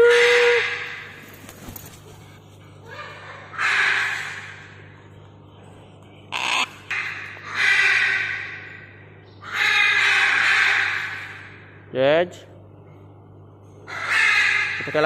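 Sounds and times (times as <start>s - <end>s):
macaw squawking: 6.3s - 8.7s, 13.9s - 15.0s.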